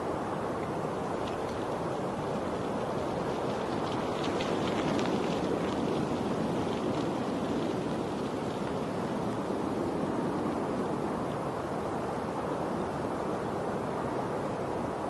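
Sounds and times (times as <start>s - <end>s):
running water rushing: 0.0s - 15.0s
water drips and splashes: 0.6s - 9.5s.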